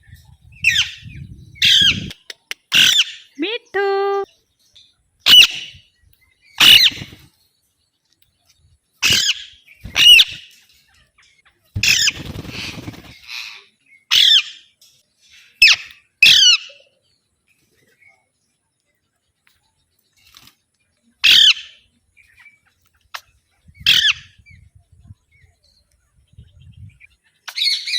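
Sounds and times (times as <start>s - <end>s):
parakeet shrill squawks: 14.1s - 14.6s, 21.2s - 21.7s, 23.8s - 24.3s.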